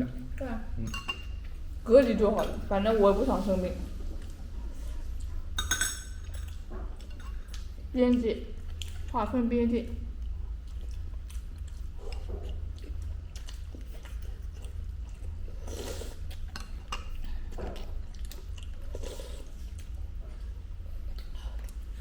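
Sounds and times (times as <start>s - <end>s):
steady low hum: 0.0s - 22.0s
close-up chewing: 4.1s - 5.6s, 6.2s - 9.2s, 10.0s - 22.0s.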